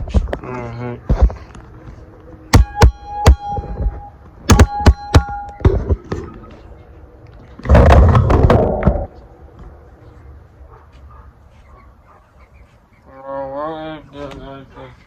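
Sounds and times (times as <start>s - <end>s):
knocks on metal ringing: 2.5s - 3.9s, 4.5s - 5.8s.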